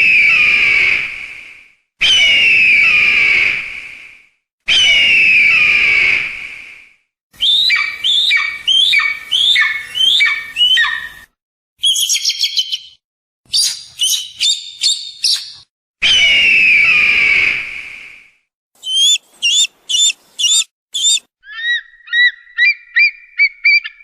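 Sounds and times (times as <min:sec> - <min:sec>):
hawk high chatter: 0:18.8 - 0:21.2
hawk cries: 0:18.8 - 0:23.1.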